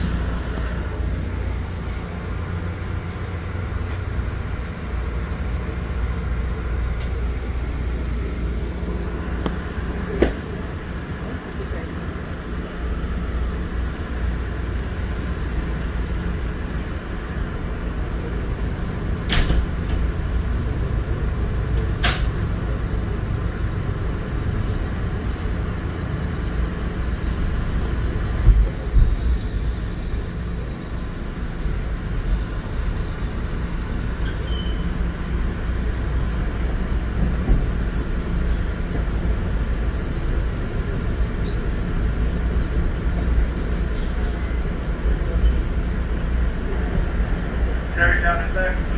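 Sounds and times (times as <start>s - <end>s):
train wheels rumbling on track: 0.0s - 48.9s
faint high squeal: 34.2s - 35.0s, 41.4s - 42.8s.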